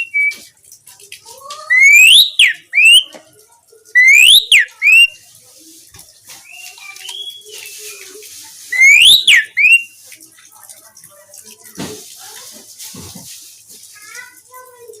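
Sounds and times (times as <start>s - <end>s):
bird whistle rising and falling: 0.0s - 0.4s, 1.7s - 3.1s, 4.0s - 5.2s, 8.8s - 9.9s
starling chatter and squeaks: 0.0s - 15.0s.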